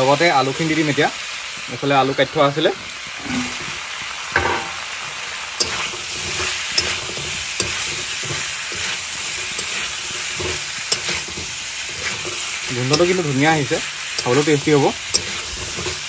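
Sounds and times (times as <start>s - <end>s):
meat frying and sizzling: 0.0s - 16.0s
metal spatula scraping pan: 3.2s - 3.8s, 5.6s - 16.0s
spatula clicking against pan: 5.6s - 5.8s, 6.7s - 8.0s, 10.9s - 13.2s, 14.1s - 16.0s.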